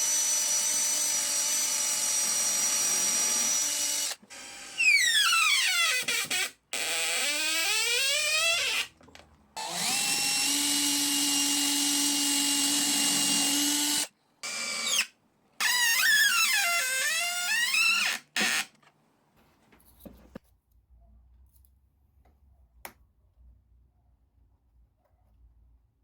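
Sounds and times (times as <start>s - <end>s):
electric drill whining: 0.0s - 8.9s, 9.6s - 18.8s.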